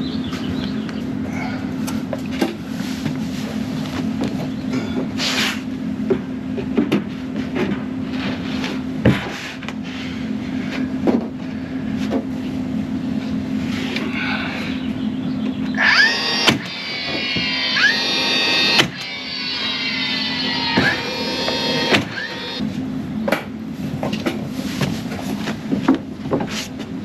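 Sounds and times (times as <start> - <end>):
low machine hum: 9.8 - 23.2.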